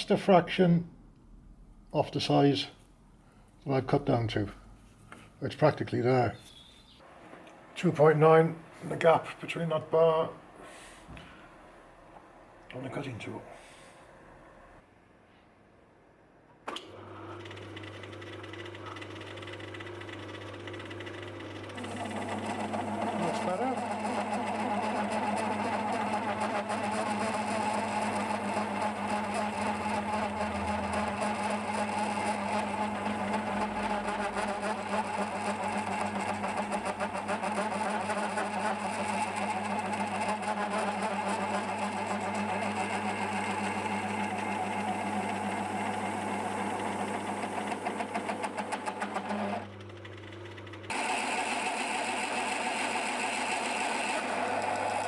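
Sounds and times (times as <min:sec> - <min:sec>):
lathe motor humming: 0:16.9 - 0:55.0.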